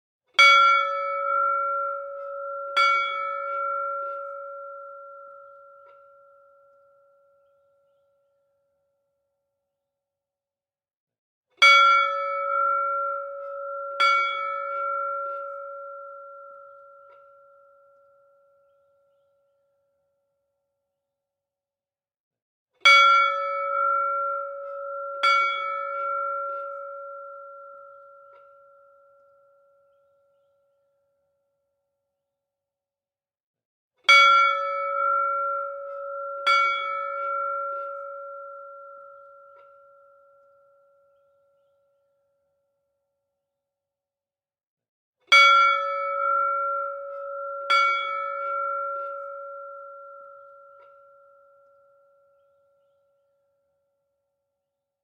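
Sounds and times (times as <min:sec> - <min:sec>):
temple bell ringing: 0:00.4 - 0:07.6, 0:11.6 - 0:18.8, 0:22.9 - 0:30.0, 0:34.1 - 0:41.4, 0:45.3 - 0:52.9.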